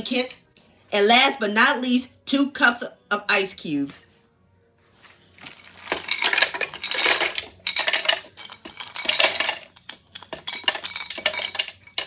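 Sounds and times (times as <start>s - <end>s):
ice cubes clattering into blender: 5.4s - 12.0s.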